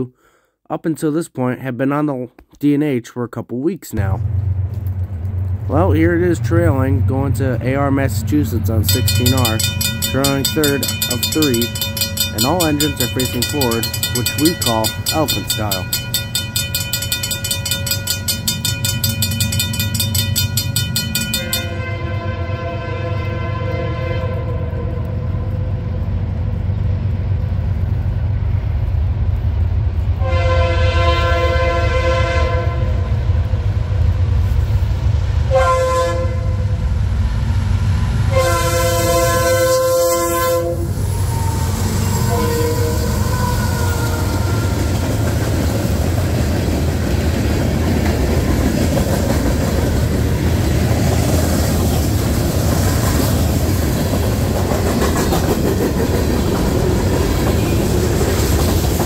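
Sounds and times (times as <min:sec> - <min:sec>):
locomotive engine rumble: 0:04.1 - 0:21.8
train wheels rolling on rails: 0:07.6 - 0:21.8, 0:40.8 - 0:59.0
train air horn blasts: 0:21.5 - 0:25.4, 0:30.2 - 0:33.1, 0:35.5 - 0:36.7, 0:38.3 - 0:44.8.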